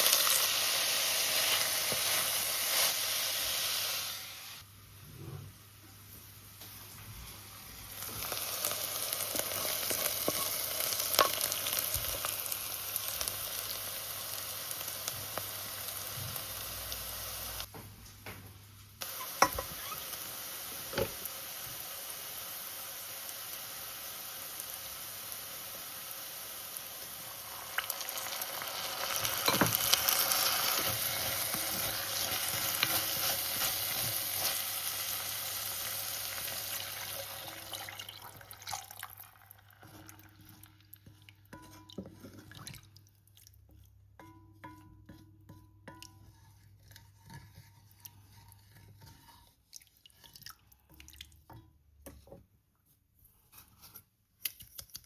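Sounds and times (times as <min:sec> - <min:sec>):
meat sizzling in a pan: 0:00.0 - 0:04.6, 0:07.7 - 0:17.7, 0:19.0 - 0:40.8
crackles of frying: 0:00.0 - 0:05.0, 0:05.6 - 0:44.3.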